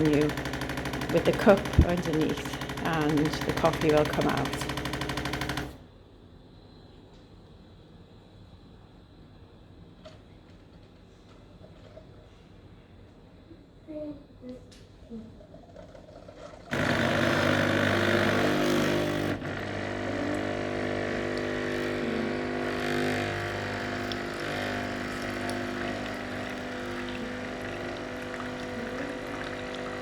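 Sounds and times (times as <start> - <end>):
coffee machine pump humming: 0.0 - 5.8, 15.4 - 30.0.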